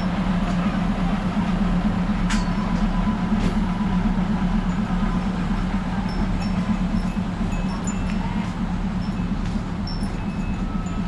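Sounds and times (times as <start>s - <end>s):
diesel railcar engine droning: 0.0s - 11.0s.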